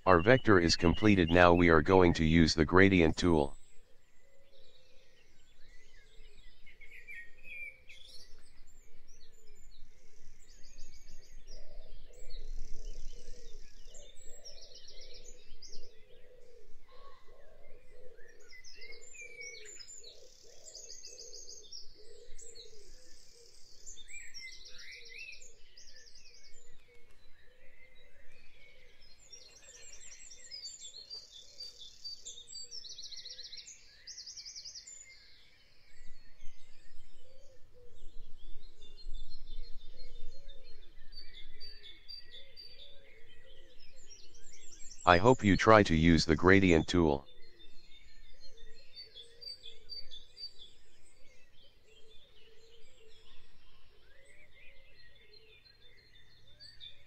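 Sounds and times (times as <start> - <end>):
low background noise: 0.0 - 3.6, 45.1 - 47.2.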